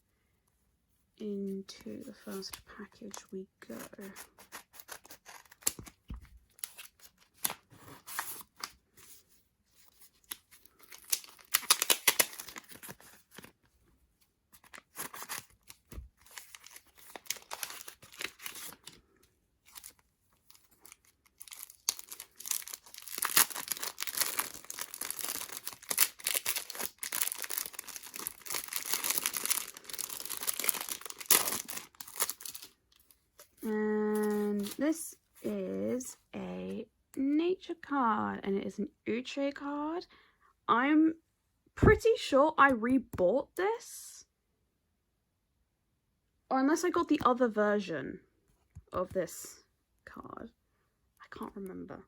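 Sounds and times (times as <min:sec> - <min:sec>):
packaging tearing and crinkling: 0:04.4 - 0:06.0, 0:10.2 - 0:13.5, 0:14.6 - 0:19.0, 0:19.7 - 0:33.0.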